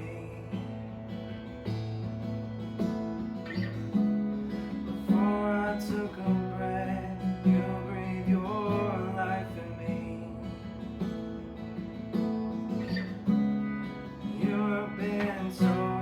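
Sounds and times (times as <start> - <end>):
acoustic guitar strumming: 0.0 - 16.0
person singing: 14.4 - 16.0.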